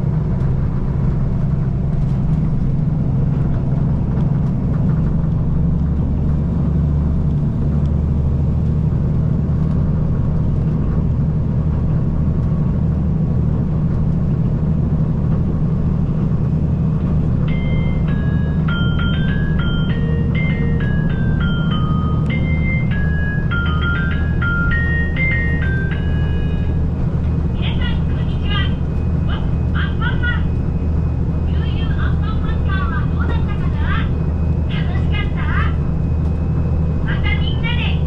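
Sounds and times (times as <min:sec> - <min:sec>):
train interior low rumble: 0:00.0 - 0:38.0
bell-like chime melody: 0:17.5 - 0:26.8.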